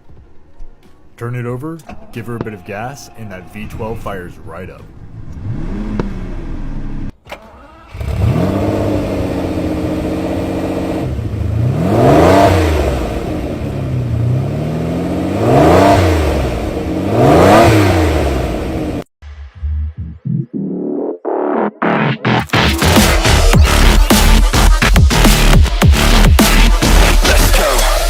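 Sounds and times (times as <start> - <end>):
car engine idling and revving: 4.8 - 19.6, 22.3 - 28.0.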